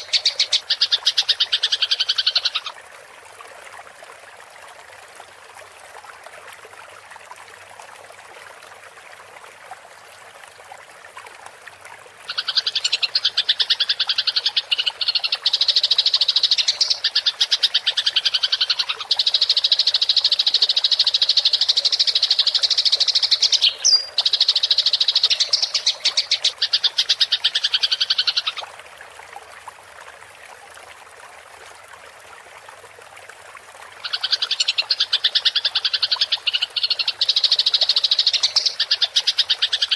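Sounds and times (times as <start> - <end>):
faint water trickle: 0.0 - 39.9.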